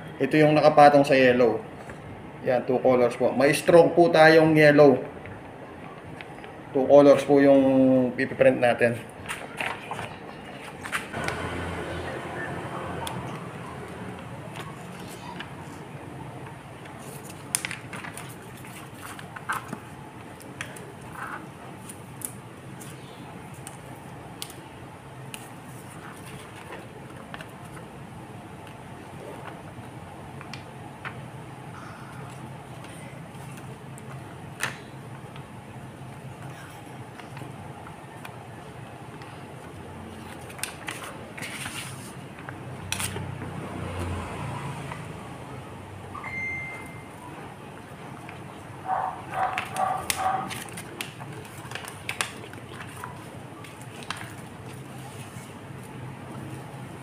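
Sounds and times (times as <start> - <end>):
vinyl sheets crinkling: 13.2 - 31.3, 32.2 - 43.3, 47.2 - 57.0
plastic crackles and rustles: 13.8 - 24.6, 36.5 - 43.3, 49.3 - 57.0.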